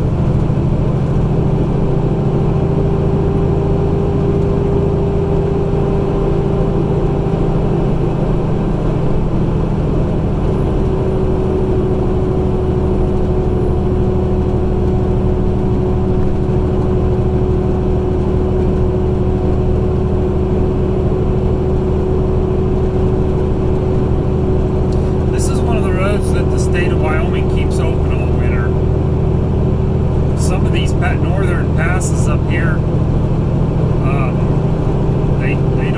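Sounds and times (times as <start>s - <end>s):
truck diesel engine running: 0.0s - 35.9s.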